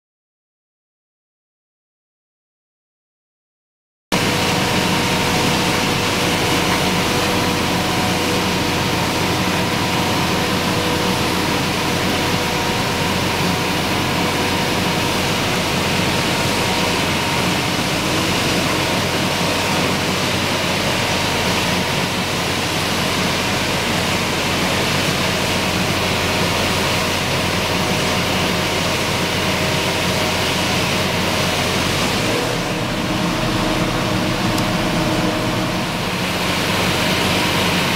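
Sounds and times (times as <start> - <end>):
harvesting machinery running: 4.2 - 37.9
tractor engine running: 4.2 - 37.9.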